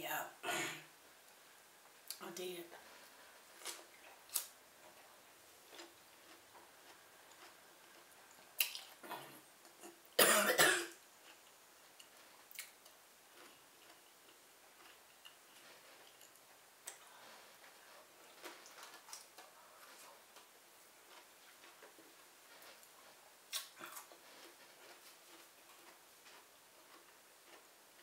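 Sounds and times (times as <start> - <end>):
chewing with wet mouth clicks: 5.7 - 10.0, 11.3 - 17.0, 18.3 - 20.5.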